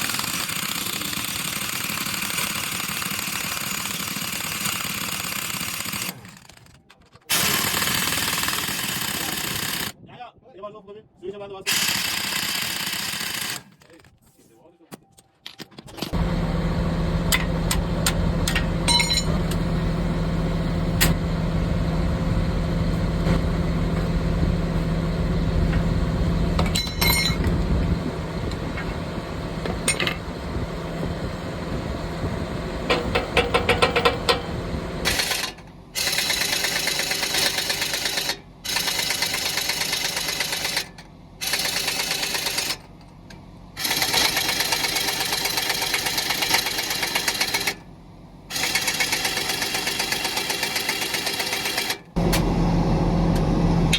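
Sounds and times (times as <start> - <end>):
machine running roughly: 16.1 - 42.9, 43.8 - 47.8, 48.5 - 53.9
machinery humming: 16.2 - 36.0, 52.2 - 53.9.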